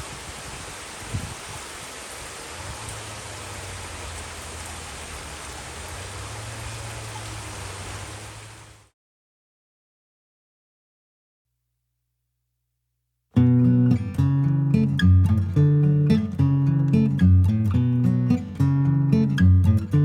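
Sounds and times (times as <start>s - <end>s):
steady rain hiss: 0.0s - 8.9s.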